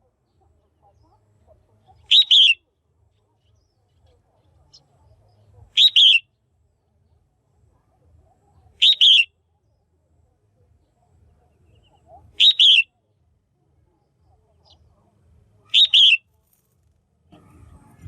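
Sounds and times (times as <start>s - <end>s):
bird two-note calls: 2.1s - 2.6s, 5.8s - 6.2s, 8.8s - 9.3s, 12.4s - 12.9s, 15.7s - 16.2s.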